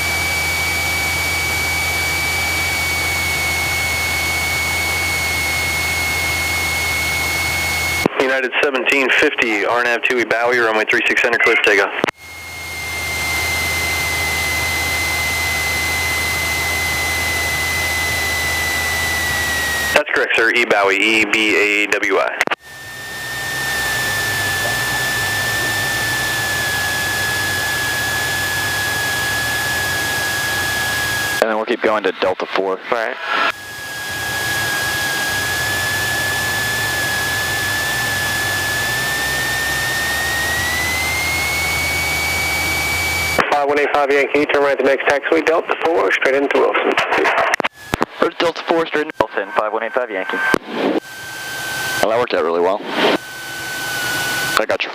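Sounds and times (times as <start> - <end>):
aircraft engine droning: 0.0 - 8.2, 12.1 - 20.1, 22.6 - 32.6, 33.2 - 43.5, 47.7 - 54.9
thin high whine: 11.4 - 21.8, 22.4 - 43.8, 45.6 - 54.9.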